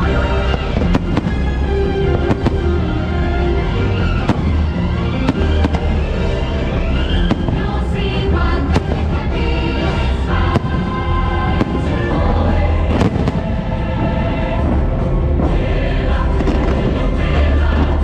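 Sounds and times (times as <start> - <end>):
fireworks bangs: 0.0 - 14.3.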